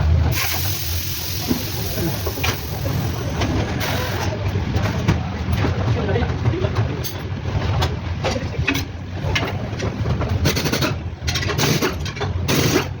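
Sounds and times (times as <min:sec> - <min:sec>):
steady hiss: 0:00.3 - 0:04.2.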